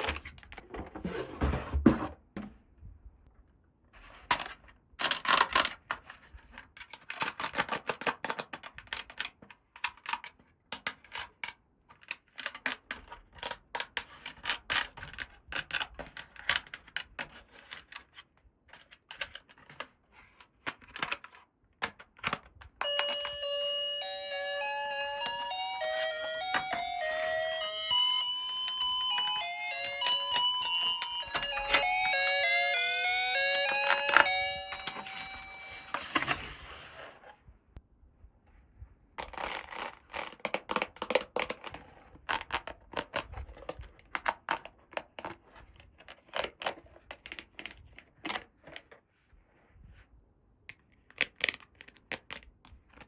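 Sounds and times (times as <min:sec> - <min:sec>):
plastic toy pieces clicking: 0:04.3 - 0:06.0, 0:28.6 - 0:32.8, 0:33.4 - 0:36.3
chiming melody: 0:22.8 - 0:36.2.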